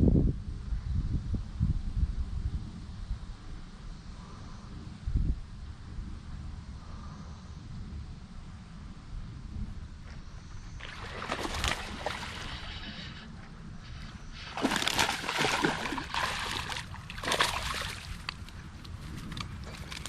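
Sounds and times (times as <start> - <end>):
fish splashing water: 10.8 - 13.2, 14.4 - 18.6.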